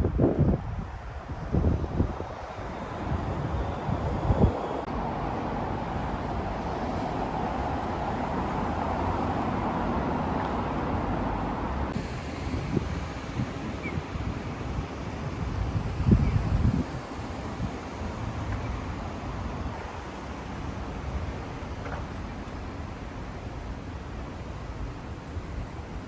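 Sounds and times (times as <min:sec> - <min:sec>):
wind buffeting microphone: 0:00.0 - 0:20.1
passing vehicles rumbling: 0:00.1 - 0:26.0.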